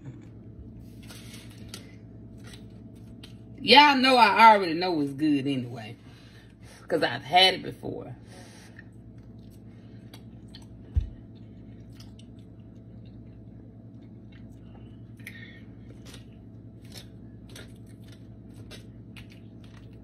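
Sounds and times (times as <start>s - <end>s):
steady low hum: 0.0s - 20.0s
person chewing: 0.1s - 3.5s, 8.7s - 20.0s.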